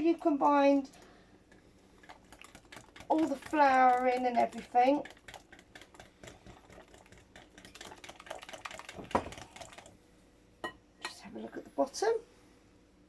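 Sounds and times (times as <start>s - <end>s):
utensil clicking against bowl: 1.5s - 9.9s.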